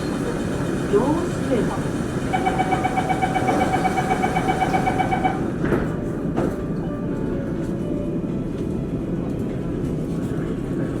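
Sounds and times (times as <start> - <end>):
train hum: 0.0 - 11.0
rapid warning beeps: 2.3 - 5.4.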